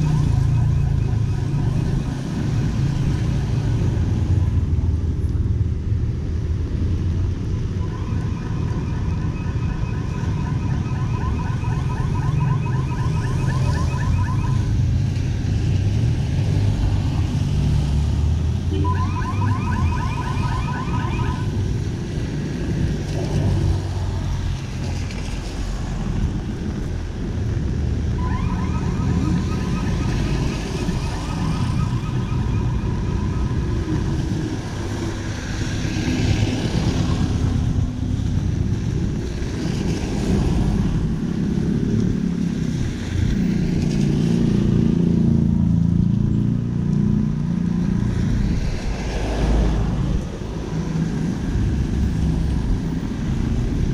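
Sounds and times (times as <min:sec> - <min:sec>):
street traffic rumble: 0:00.0 - 0:53.9
rapid electronic beeping: 0:07.9 - 0:14.7, 0:28.2 - 0:33.8.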